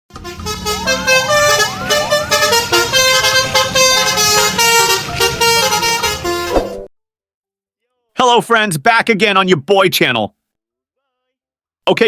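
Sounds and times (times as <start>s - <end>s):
horn-like intro jingle: 0.1s - 6.5s.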